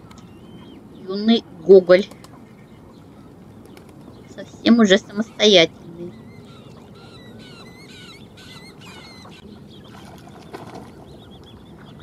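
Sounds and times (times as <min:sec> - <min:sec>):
lakeside ambience: 0:00.0 - 0:12.0
high-pitched bird chirps: 0:04.2 - 0:09.8.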